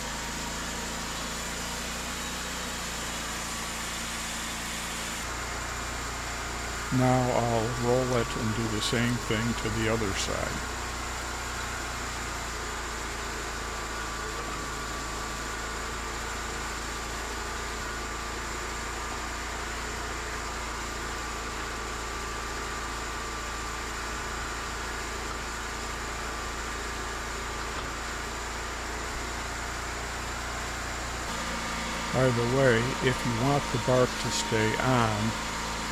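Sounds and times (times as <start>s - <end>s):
sawmill humming with thin whine: 0.0s - 18.2s, 30.7s - 35.9s.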